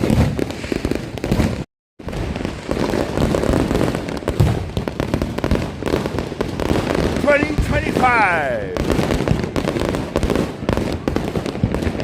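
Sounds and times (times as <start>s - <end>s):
fireworks crackling and banging: 0.0s - 12.0s.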